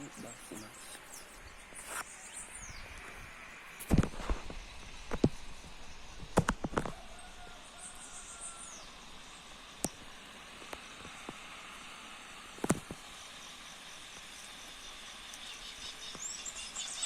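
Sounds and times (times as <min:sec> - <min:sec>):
outdoor hiss: 0:00.0 - 0:17.0
sharp cracks and knocks: 0:06.2 - 0:07.0, 0:12.6 - 0:13.0.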